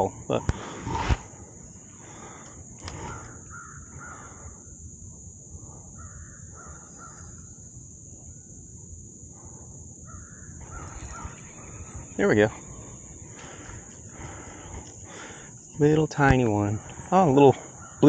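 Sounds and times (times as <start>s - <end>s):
bird calling: 0.0s - 4.8s, 6.0s - 7.6s, 10.1s - 18.0s
high-pitched drone: 10.6s - 13.9s.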